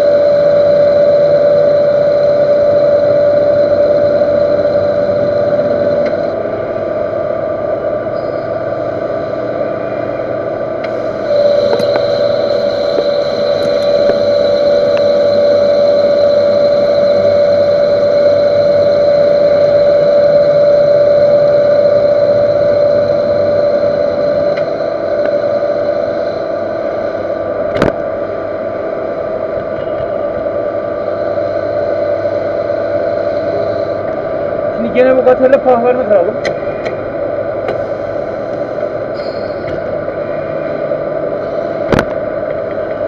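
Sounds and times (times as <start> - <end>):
lathe cutting ringing tone: 0.0 - 43.0
lathe running noise: 0.0 - 43.0.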